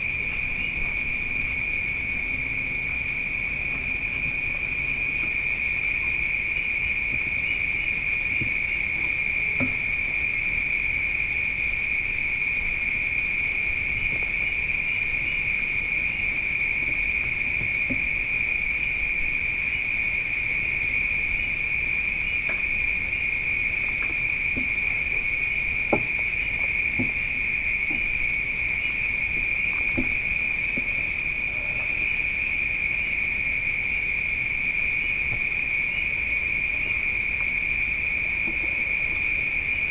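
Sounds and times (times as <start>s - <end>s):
crickets chirping: 0.0s - 39.9s
faint ticks and knocks: 25.9s - 28.1s.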